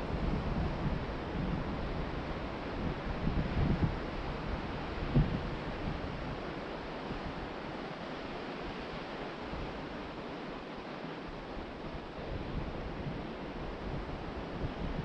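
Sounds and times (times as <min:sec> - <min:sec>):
wind buffeting microphone: 0:00.0 - 0:07.5, 0:11.6 - 0:15.0
ocean surf washing onto beach: 0:00.0 - 0:15.0.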